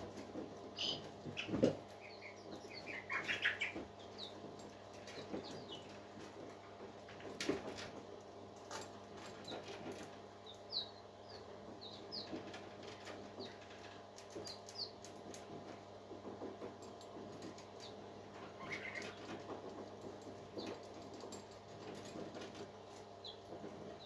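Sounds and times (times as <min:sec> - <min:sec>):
parakeets chirping: 0:00.8 - 0:04.3, 0:18.6 - 0:19.2.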